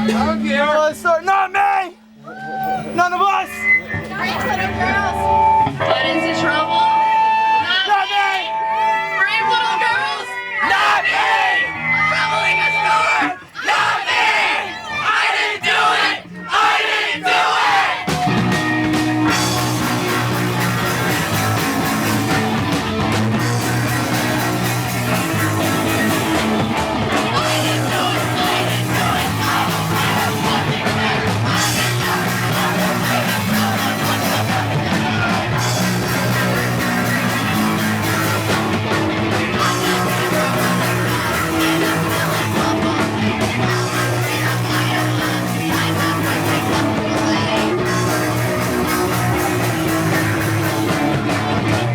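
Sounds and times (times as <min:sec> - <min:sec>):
bass guitar: 0:00.0 - 0:01.1, 0:01.9 - 0:07.8, 0:10.4 - 0:13.4, 0:17.6 - 0:51.9
drums: 0:00.0 - 0:01.6, 0:02.2 - 0:07.6, 0:10.6 - 0:51.9
shouted vocals: 0:01.2 - 0:51.9
distorted electric guitar: 0:02.0 - 0:07.8, 0:11.4 - 0:13.0, 0:18.1 - 0:51.9.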